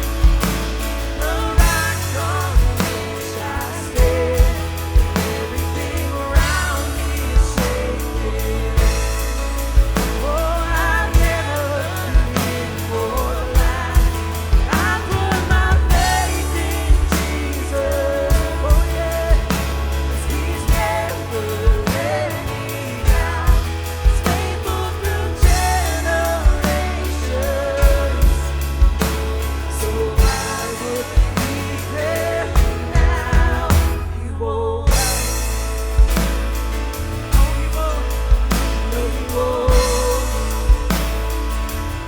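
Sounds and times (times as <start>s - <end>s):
drum kit beat: 0.0s - 34.2s, 34.9s - 42.0s
deep sustained bass: 0.0s - 42.0s.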